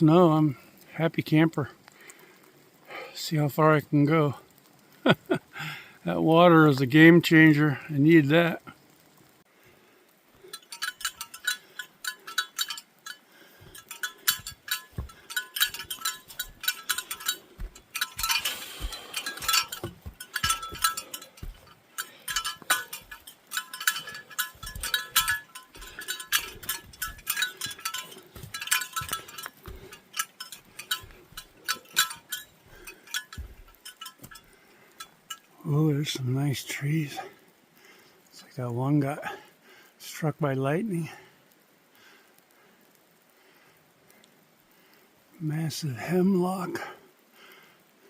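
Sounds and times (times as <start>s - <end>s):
bells jingling: 10.4s - 36.2s
soft footsteps: 10.8s - 34.5s.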